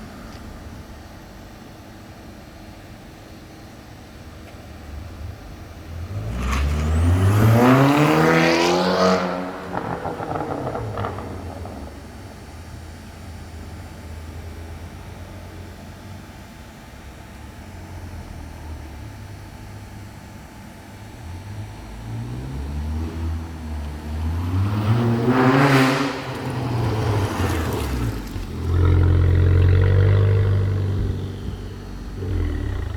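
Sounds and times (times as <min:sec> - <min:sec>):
car engine revving: 0:04.8 - 0:13.2, 0:21.0 - 0:32.9.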